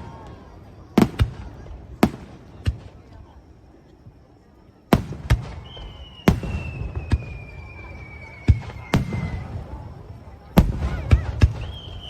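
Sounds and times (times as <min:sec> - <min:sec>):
fireworks bangs: 0:00.0 - 0:03.4, 0:04.9 - 0:12.0
firework whistle falling in pitch: 0:05.5 - 0:09.6, 0:11.5 - 0:12.0.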